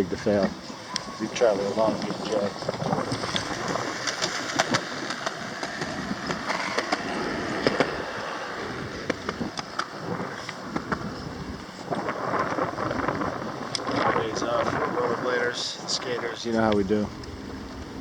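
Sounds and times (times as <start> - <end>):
wheels rolling over pavement: 0.0 - 18.0
sharp clicks and rattles: 1.8 - 7.9.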